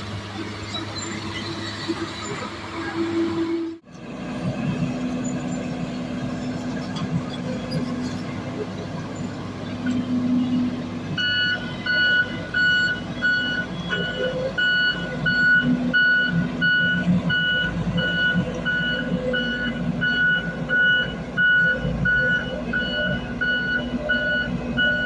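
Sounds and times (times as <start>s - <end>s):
diesel engine rumble: 0.0s - 25.0s
reversing alarm beeping: 10.4s - 25.0s.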